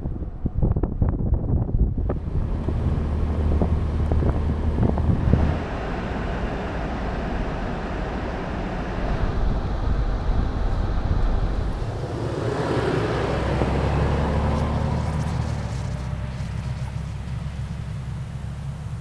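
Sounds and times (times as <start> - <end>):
engine hum: 0.0 - 19.0
tyres and wind rushing: 0.0 - 19.0.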